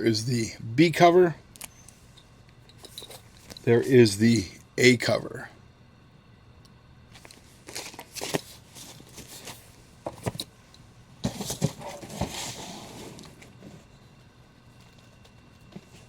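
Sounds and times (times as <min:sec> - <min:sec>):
paper rustling: 0:07.2 - 0:10.4.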